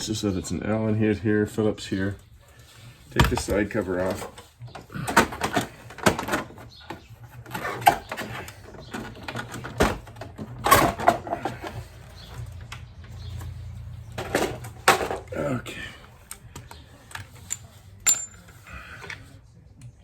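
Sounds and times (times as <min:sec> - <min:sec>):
metal tools and screws clinking: 0:16.2 - 0:19.3.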